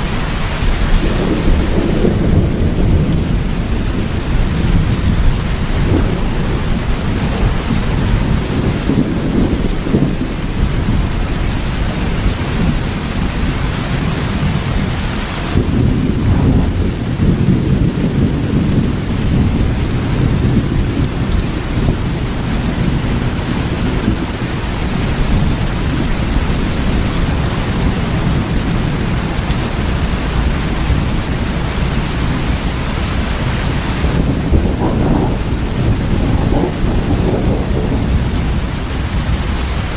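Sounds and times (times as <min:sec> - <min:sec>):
heavy rain hissing: 0:00.0 - 0:39.9
low thunder rumble: 0:00.0 - 0:39.9.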